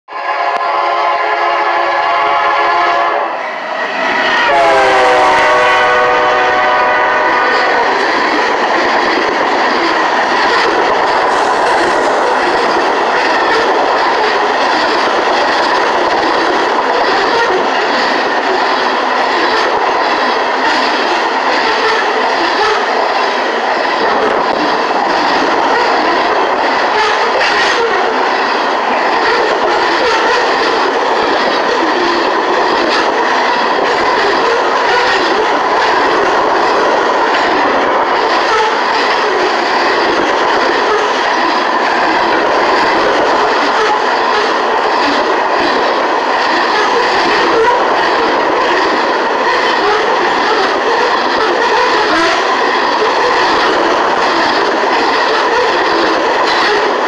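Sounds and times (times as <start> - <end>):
locomotive air horn: 0.1 - 3.4, 4.4 - 7.8, 34.4 - 35.4
train cars rushing by: 0.1 - 57.0
train wheels clattering: 3.8 - 57.0.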